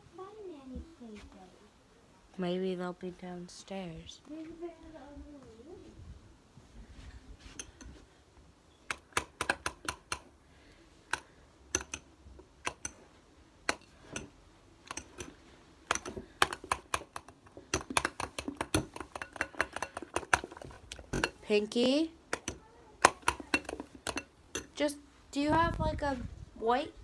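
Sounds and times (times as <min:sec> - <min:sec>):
sharp irregular clicks and taps: 0:08.9 - 0:10.3, 0:11.1 - 0:13.0, 0:13.6 - 0:21.4, 0:22.3 - 0:24.8.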